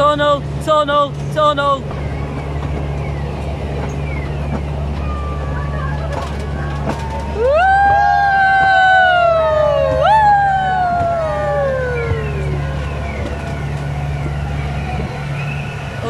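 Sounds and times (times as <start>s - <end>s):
train rumbling in tunnel: 0.0s - 16.0s
wailing whistle tones: 7.3s - 16.0s.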